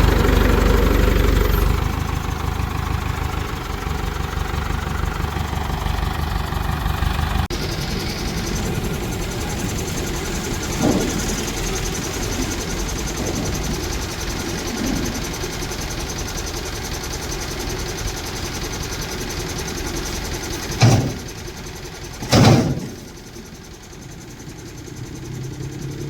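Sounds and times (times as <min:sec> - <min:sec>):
heavy diesel engine running: 0:00.0 - 0:26.0
loud bangs: 0:08.2 - 0:16.2, 0:20.2 - 0:23.4.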